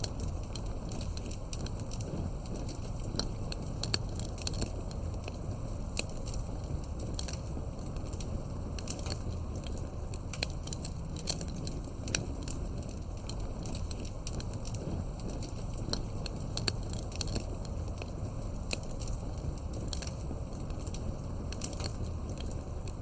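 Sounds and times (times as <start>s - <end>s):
campfire pops and snaps: 0.0s - 23.0s
fire rumbling: 0.0s - 23.0s.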